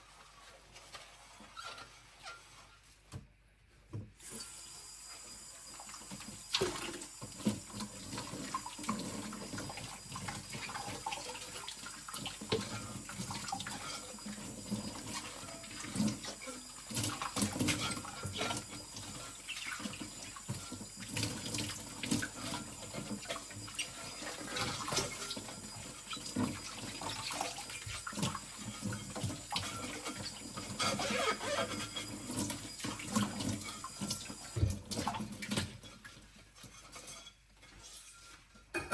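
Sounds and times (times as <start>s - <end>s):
tap running into a sink: 5.6s - 35.8s
pans clanking: 35.6s - 38.9s.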